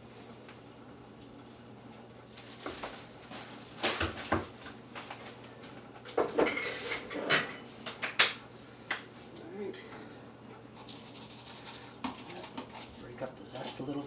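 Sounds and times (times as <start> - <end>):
utensils clinking: 6.3 - 7.7.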